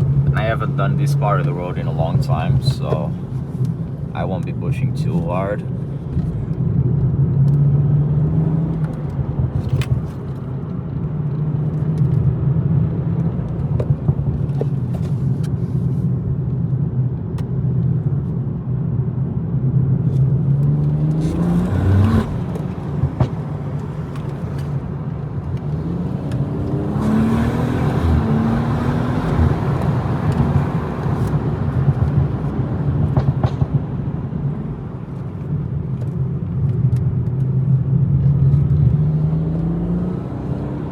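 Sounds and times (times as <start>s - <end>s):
car engine revving: 20.1s - 35.3s, 38.2s - 40.9s.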